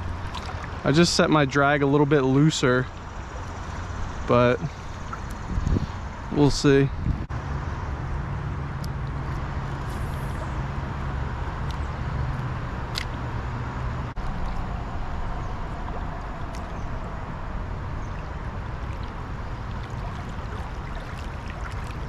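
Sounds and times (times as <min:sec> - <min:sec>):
constant low hum: 0:00.0 - 0:22.0
river current rushing: 0:14.2 - 0:22.0.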